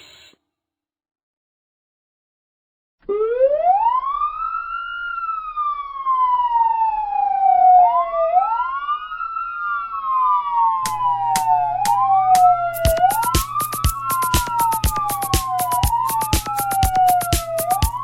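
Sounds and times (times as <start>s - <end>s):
ambulance siren wailing: 3.1s - 18.0s
music beat with drum hits: 10.9s - 18.0s.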